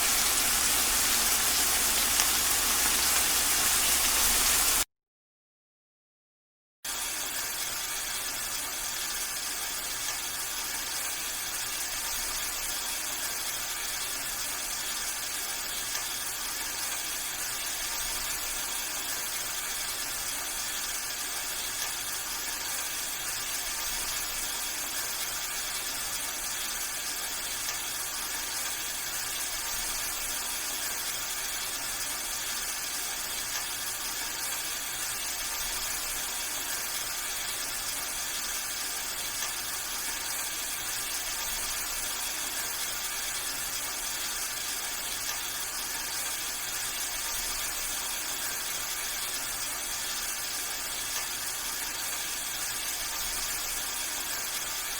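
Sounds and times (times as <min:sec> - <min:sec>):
steady rain: 0:00.0 - 0:04.8.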